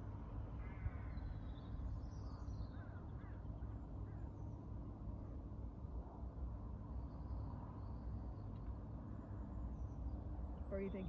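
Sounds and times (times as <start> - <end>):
birds chirping: 9.7 - 11.0.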